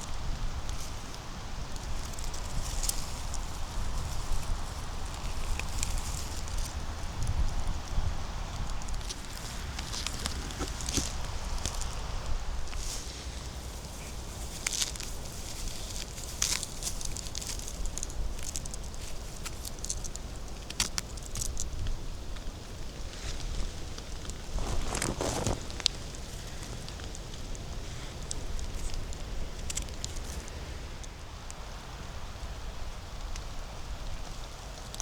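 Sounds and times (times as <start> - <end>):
leaves rustling: 0.0 - 35.0
twigs snapping: 0.1 - 22.0, 23.3 - 31.2
footsteps through leaf litter: 9.0 - 18.5, 23.2 - 26.8.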